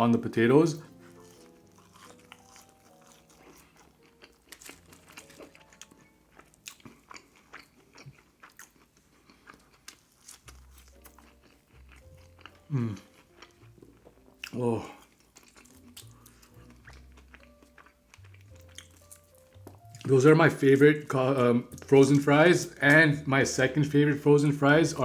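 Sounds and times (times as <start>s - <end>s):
faint background music: 0.0s - 25.0s
crunchy chewing: 0.9s - 20.2s.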